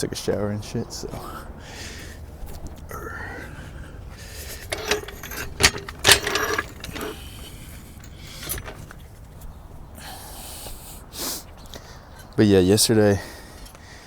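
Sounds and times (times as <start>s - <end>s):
metal gear clanking and rattling: 4.4s - 9.3s.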